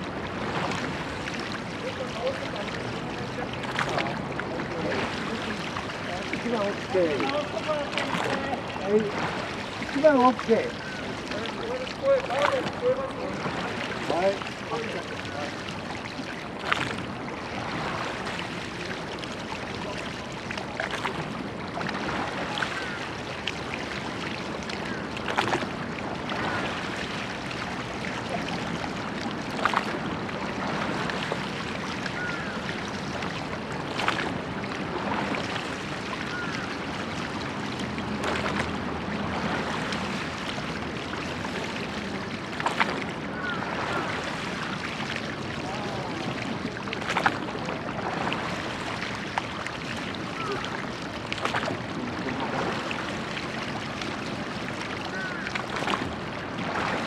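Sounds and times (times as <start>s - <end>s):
water rushing: 0.0s - 57.0s
wind: 0.0s - 57.0s
oar strokes: 24.8s - 27.1s, 28.3s - 30.0s, 33.4s - 37.4s, 39.4s - 45.3s, 46.0s - 57.0s.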